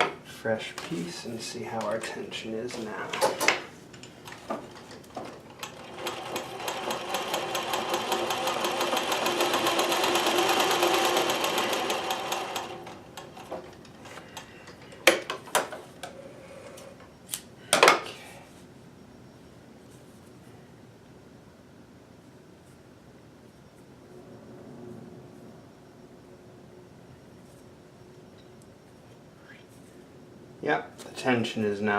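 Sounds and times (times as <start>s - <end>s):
sewing machine stitching: 5.5s - 13.6s.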